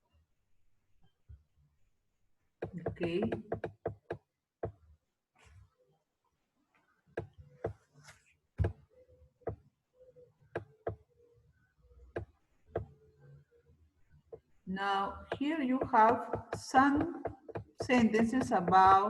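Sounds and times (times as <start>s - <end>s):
sharp clicks and knocks: 2.6s - 4.8s, 15.2s - 19.0s.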